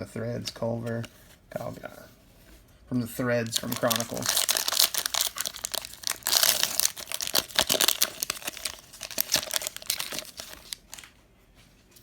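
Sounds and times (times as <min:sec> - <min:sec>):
plastic wrapper tearing and crinkling: 0:03.4 - 0:11.1.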